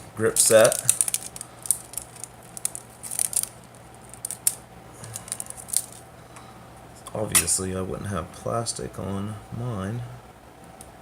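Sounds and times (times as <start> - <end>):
plastic wrapping crinkling: 0.2 - 6.0.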